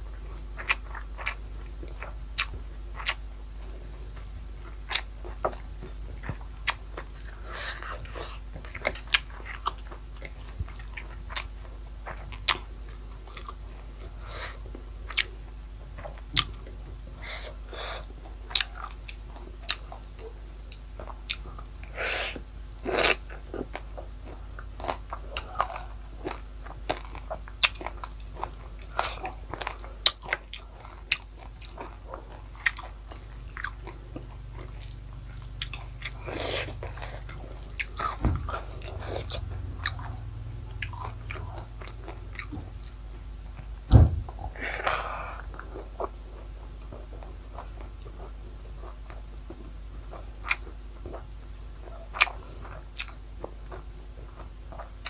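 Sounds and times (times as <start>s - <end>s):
person chewing: 0.4s - 55.0s.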